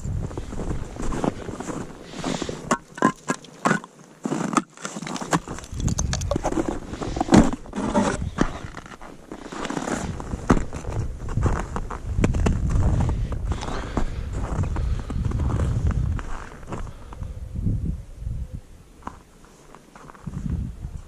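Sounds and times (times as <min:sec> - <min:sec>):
wind gusts on microphone: 0:00.0 - 0:02.7, 0:05.4 - 0:08.9, 0:09.8 - 0:19.2, 0:20.2 - 0:21.0
boots crunching on snow: 0:00.2 - 0:03.2, 0:06.4 - 0:13.0.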